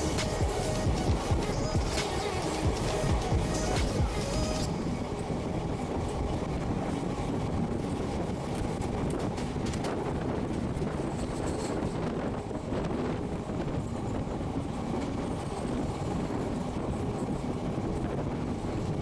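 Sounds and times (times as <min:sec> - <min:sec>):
wheels rumbling on rails: 0:00.0 - 0:19.0
rail joint clicks: 0:05.6 - 0:18.9.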